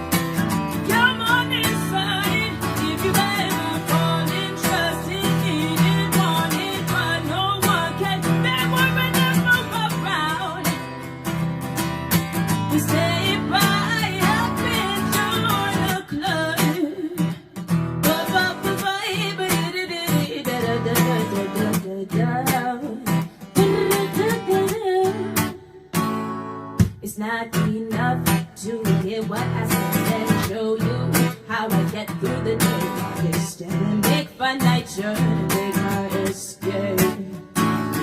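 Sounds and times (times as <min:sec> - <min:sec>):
acoustic guitar strumming: 0:00.0 - 0:38.0
woman singing: 0:00.4 - 0:11.4, 0:12.3 - 0:25.9, 0:26.8 - 0:38.0.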